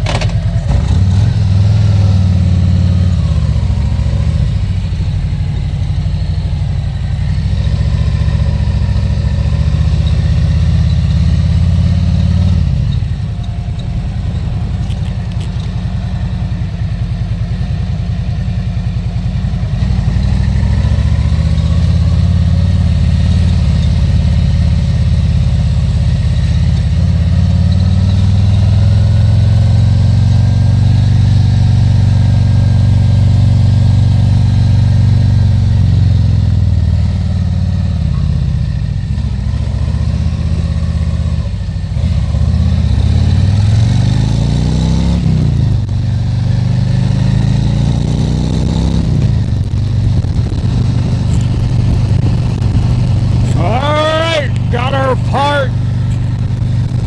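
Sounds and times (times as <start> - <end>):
motorcycle accelerating: 0.0 - 57.0
motorcycle engine cruising: 0.0 - 57.0
gear shift: 12.9 - 16.0, 46.8 - 57.0.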